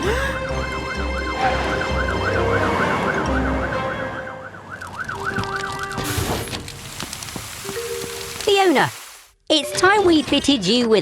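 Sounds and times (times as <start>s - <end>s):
background music: 0.0s - 6.0s
cartoon siren wailing: 0.9s - 5.8s.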